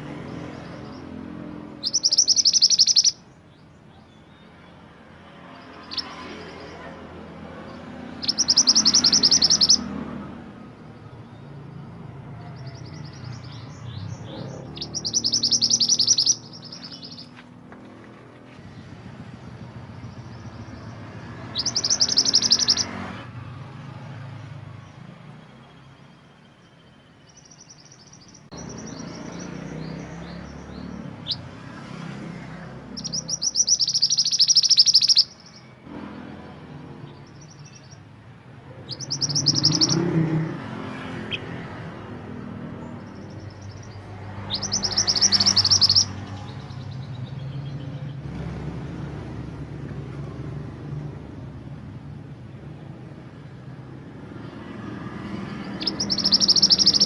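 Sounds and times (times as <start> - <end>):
bird chirps: 0.2 - 4.9, 5.5 - 7.0, 7.7 - 10.0, 12.4 - 17.5, 19.4 - 23.0, 24.8 - 31.7, 32.9 - 35.8, 37.0 - 38.1, 38.7 - 48.4, 54.4 - 57.0
bird trilling: 0.7 - 3.4, 5.7 - 6.8, 8.1 - 10.0, 12.5 - 17.4, 20.0 - 23.0, 27.3 - 31.5, 32.9 - 35.7, 38.7 - 40.6, 42.8 - 47.4, 55.4 - 57.0.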